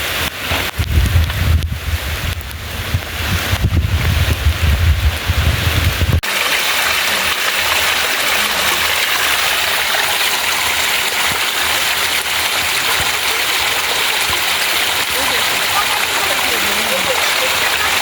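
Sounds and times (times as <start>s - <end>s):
running water rushing: 0.0s - 18.0s
wind buffeting microphone: 0.6s - 6.3s.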